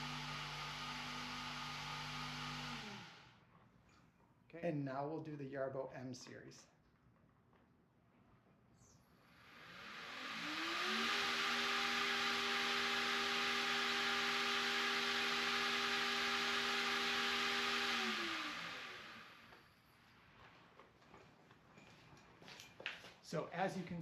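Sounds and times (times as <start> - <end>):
robot mower blades whirring: 9.3 - 19.7.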